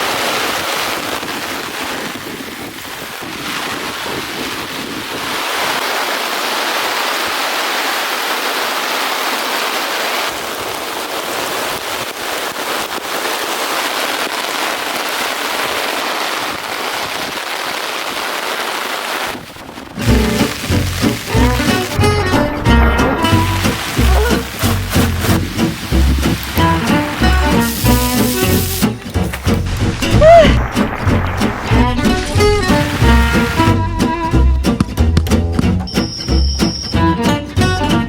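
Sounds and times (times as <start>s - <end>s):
heavy rain pouring: 0.0s - 38.0s
music: 20.0s - 38.0s.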